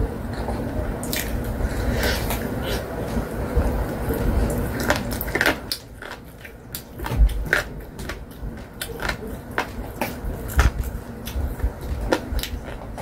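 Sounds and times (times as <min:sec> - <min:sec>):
fried chicken crunching: 0:04.1 - 0:13.0.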